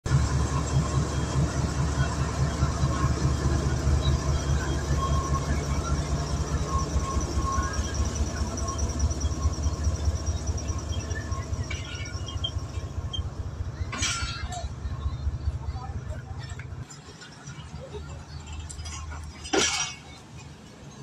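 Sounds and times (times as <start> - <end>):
faint high whine: 0.1 - 16.6
train coaches rumbling past: 0.1 - 21.0.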